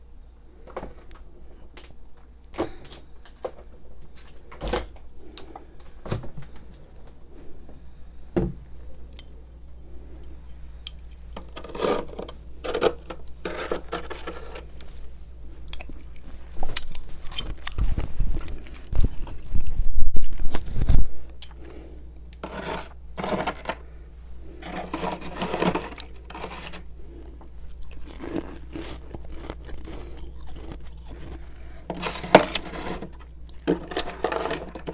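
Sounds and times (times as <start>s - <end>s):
frost scraping: 11.4s - 15.1s, 22.4s - 23.9s, 24.5s - 26.9s, 28.2s - 34.9s
heavy crunching bites: 27.7s - 34.9s.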